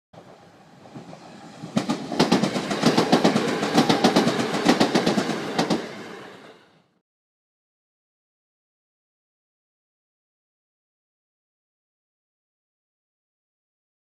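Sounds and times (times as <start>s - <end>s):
train wheels clicking over rail joints: 0.2s - 6.6s.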